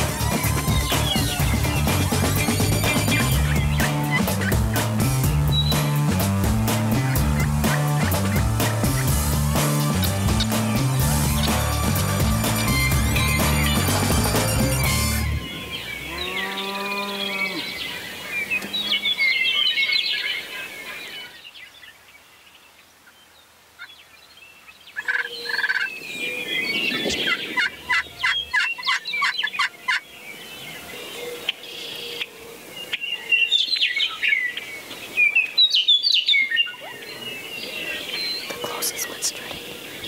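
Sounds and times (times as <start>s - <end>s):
turkeys gobbling: 0.0s - 5.8s, 7.0s - 15.2s, 25.0s - 25.9s, 27.0s - 30.0s
songbirds chirping: 0.0s - 40.0s.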